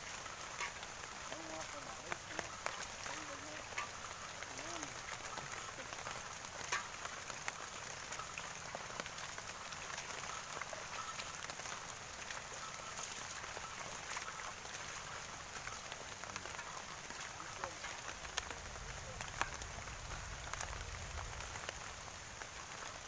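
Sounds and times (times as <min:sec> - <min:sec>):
heavy rain hiss: 0:00.0 - 0:23.0
sharp raindrop taps: 0:00.0 - 0:23.0.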